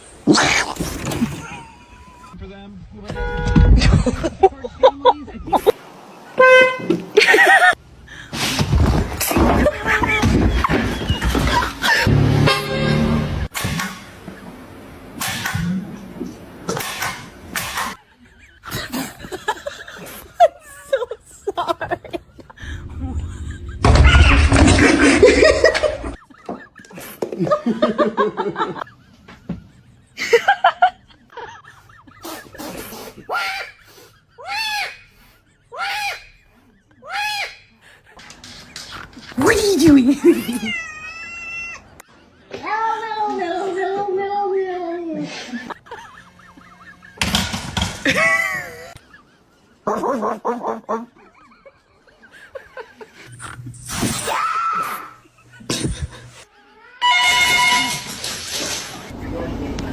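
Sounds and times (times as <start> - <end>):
person laughing: 18.0 - 34.5, 39.4 - 40.8, 45.2 - 53.7, 54.7 - 56.6
cat meowing: 40.3 - 42.0.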